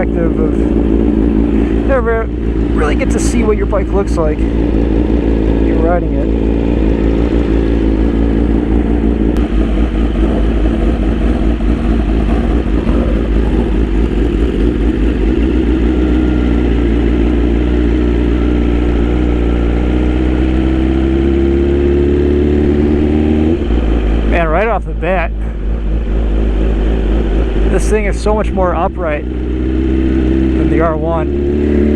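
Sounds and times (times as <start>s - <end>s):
motorcycle engine: 0.0s - 31.9s
wind rush: 6.2s - 15.4s.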